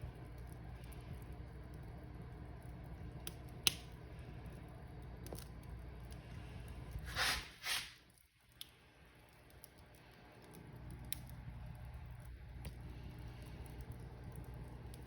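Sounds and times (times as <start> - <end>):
fire crackling and popping: 0.0 - 15.0
fire flames rumbling: 0.0 - 15.0
fire hissing: 6.2 - 8.2.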